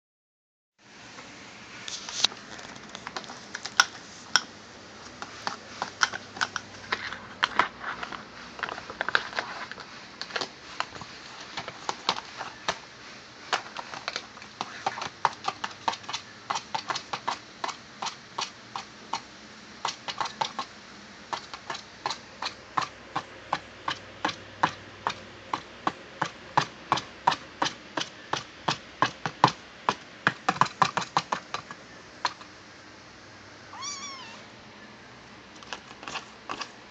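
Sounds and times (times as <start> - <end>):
kitten scratching a box: 13.6 - 19.2, 19.8 - 20.7, 21.3 - 32.5, 35.6 - 36.8.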